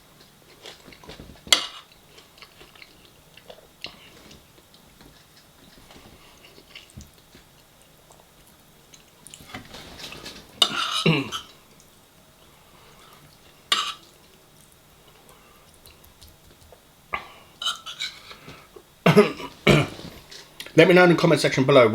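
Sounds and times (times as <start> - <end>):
person chewing: 0.2 - 12.0
cutlery clinking on dishes: 1.5 - 1.9, 10.6 - 11.5, 13.7 - 14.0.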